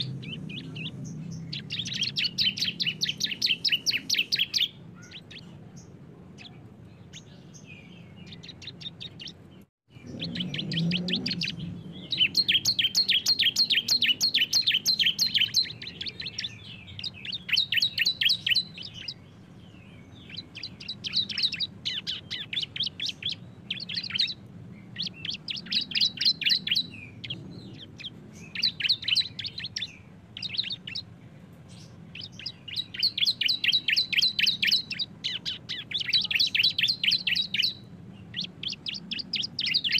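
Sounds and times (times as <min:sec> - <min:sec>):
birds trilling sharp chirps: 0:00.0 - 0:39.9.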